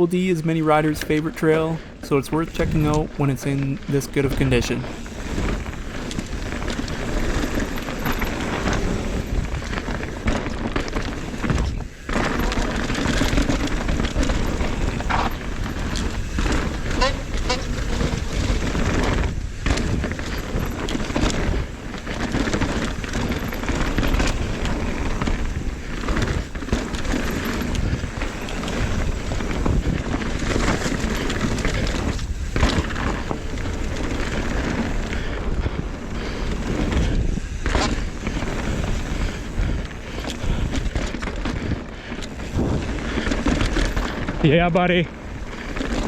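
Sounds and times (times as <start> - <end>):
bike rattling over ground: 0.0 - 46.0
tyre noise: 0.0 - 46.0
wind buffeting microphone: 0.0 - 46.0.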